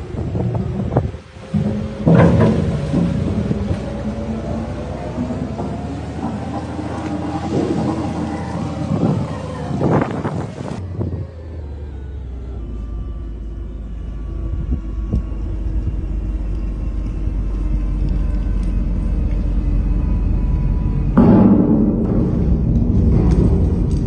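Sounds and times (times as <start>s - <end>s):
low rumble: 0.0s - 24.0s
faint machinery hum: 10.4s - 24.0s.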